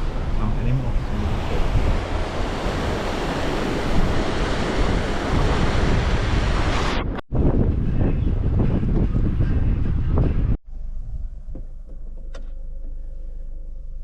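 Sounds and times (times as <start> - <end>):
wind rushing over microphone: 0.0 - 11.5.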